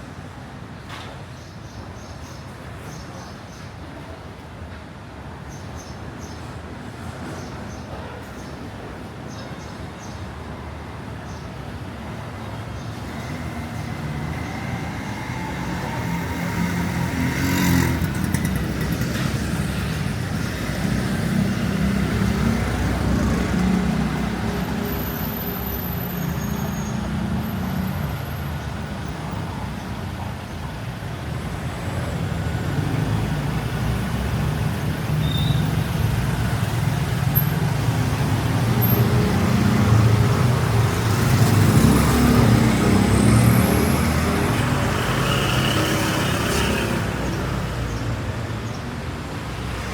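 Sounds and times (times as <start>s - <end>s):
vehicles passing close by: 0.0s - 49.9s.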